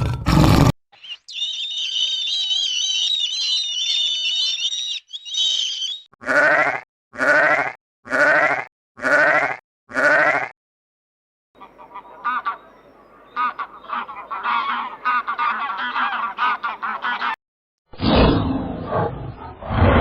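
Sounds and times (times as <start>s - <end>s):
quavering bleats: 6.2s - 10.5s.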